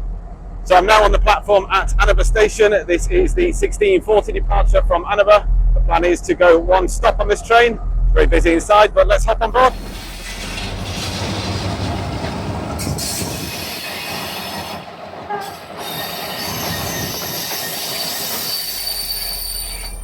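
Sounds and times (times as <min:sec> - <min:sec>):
train running on rails: 0:00.0 - 0:20.0
high-pitched wheel squeal: 0:12.8 - 0:20.0.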